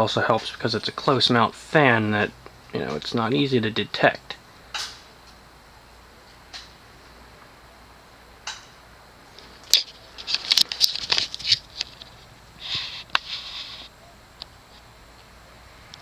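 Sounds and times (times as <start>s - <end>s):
faint steady background noise: 0.0s - 16.0s
rustling and scratching: 9.3s - 14.0s.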